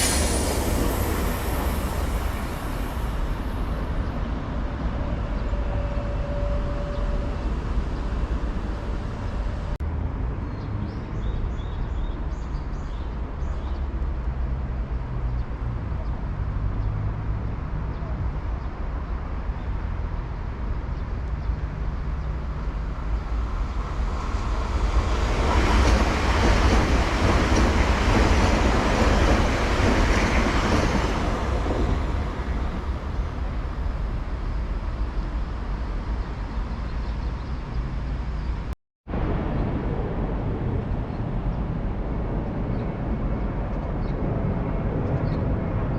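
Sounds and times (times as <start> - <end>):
train wheels rushing on track: 0.0 - 9.8, 21.5 - 38.7.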